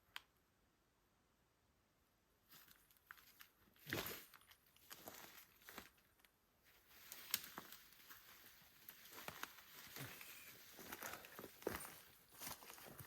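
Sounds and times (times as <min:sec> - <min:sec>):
rustling: 0:02.5 - 0:13.0
footsteps: 0:06.7 - 0:13.0.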